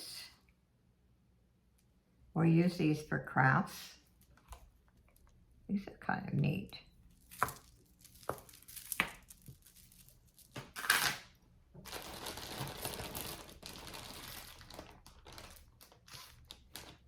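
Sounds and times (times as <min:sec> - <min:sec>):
packaging crinkling: 0:07.0 - 0:17.0.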